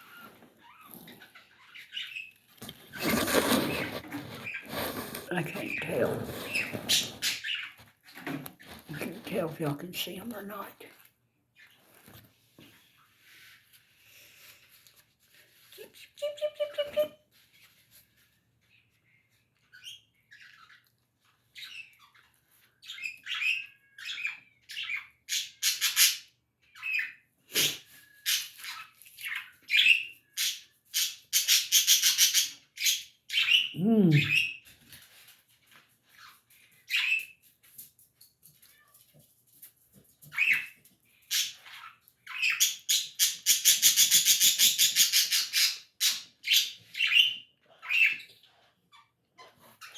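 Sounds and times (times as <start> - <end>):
small birds chirping: 0.0 - 10.6, 18.6 - 34.7.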